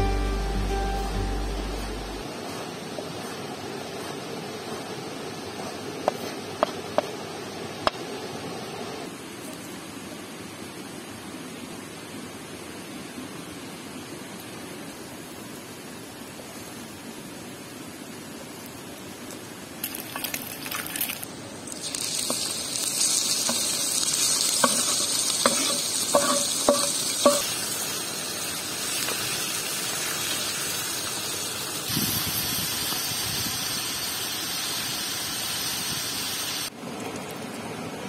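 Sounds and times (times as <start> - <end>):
kidneys sizzling in a pan: 21.0 - 36.7
metal utensil tapping a pan: 24.6 - 27.5.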